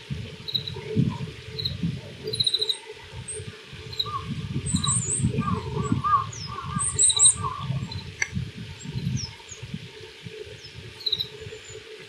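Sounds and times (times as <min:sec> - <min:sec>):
finch singing: 0:00.4 - 0:00.9, 0:01.5 - 0:09.5.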